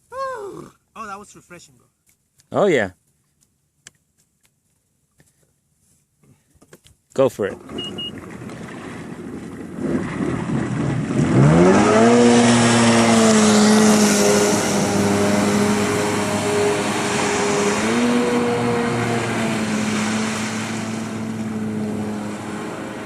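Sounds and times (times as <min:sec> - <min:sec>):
jet ski engine accelerating: 0:07.4 - 0:23.0
rush of spray and wind: 0:07.5 - 0:23.0.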